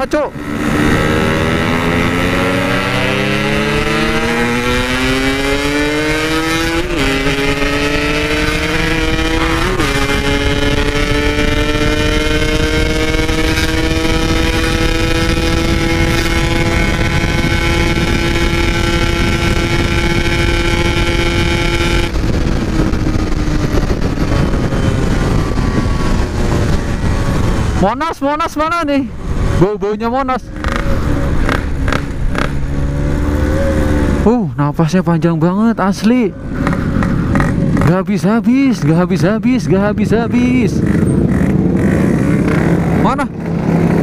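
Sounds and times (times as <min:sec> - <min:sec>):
motorcycle engine revving: 0:00.0 - 0:44.0
wind rush: 0:00.0 - 0:44.0.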